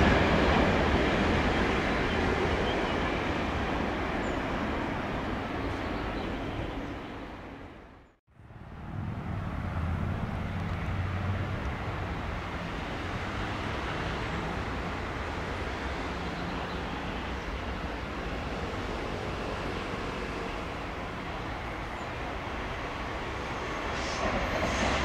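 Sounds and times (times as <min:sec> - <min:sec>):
train wheels rumbling on rail: 0:08.9 - 0:25.0.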